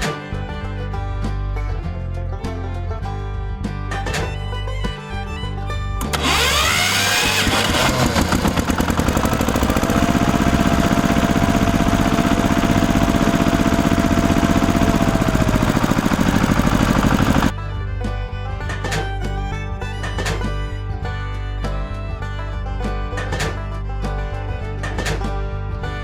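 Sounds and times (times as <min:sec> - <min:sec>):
small motor running: 0:06.0 - 0:17.5.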